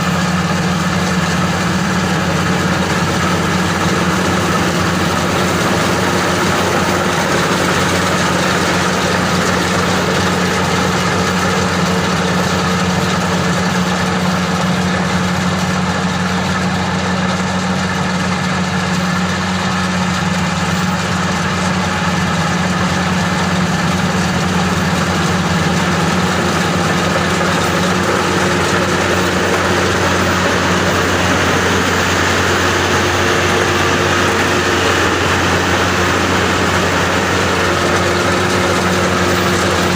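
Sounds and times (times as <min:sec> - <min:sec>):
combine harvester engine hum: 0:00.0 - 0:39.9
threshing machinery rushing: 0:00.0 - 0:39.9.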